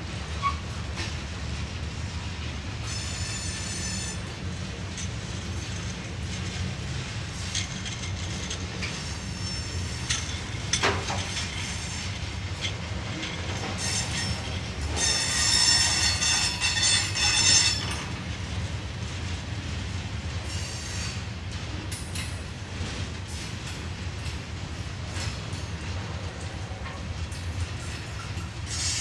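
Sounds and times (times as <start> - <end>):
high-pitched wheel squeal: 13.8 - 17.9.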